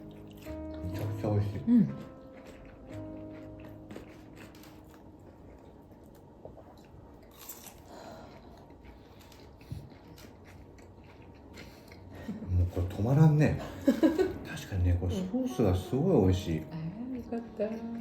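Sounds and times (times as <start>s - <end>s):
chewing and crunching: 0.0s - 13.2s.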